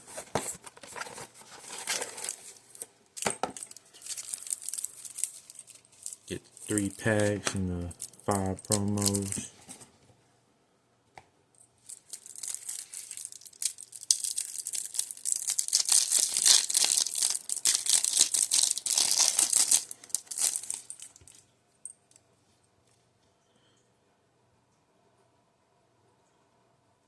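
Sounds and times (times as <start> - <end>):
plastic packaging crinkling and tearing: 0.1 - 2.9, 3.5 - 9.5, 11.9 - 21.4.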